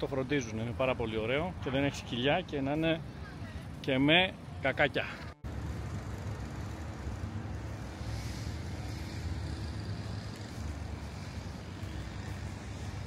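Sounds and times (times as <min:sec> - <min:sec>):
traffic rumble: 0:00.0 - 0:13.0
vehicle passing: 0:04.8 - 0:13.0.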